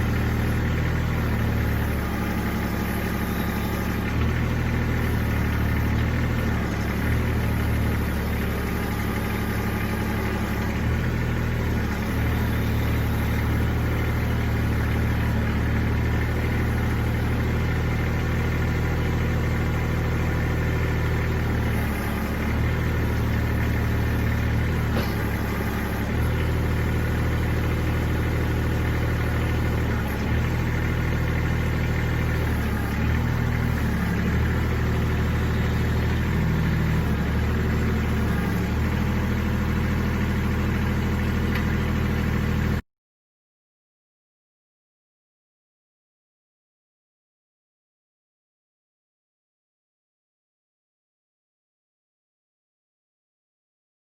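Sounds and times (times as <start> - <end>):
tractor diesel engine running: 0.0 - 42.8.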